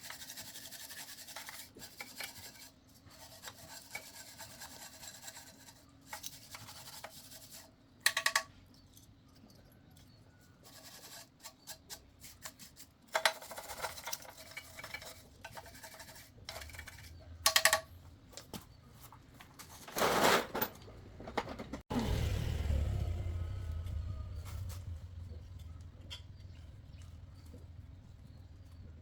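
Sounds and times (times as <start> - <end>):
metal tools clinking and scraping: 13.1 - 21.8.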